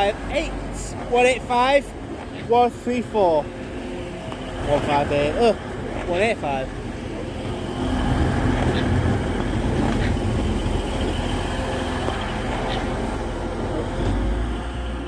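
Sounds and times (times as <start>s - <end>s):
diesel train passing: 0.0s - 15.0s.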